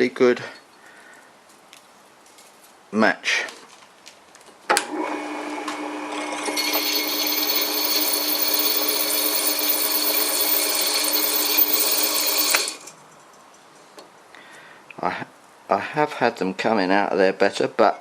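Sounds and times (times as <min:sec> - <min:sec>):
electric drill running: 0:04.9 - 0:12.9
drill bit cutting: 0:05.9 - 0:12.9.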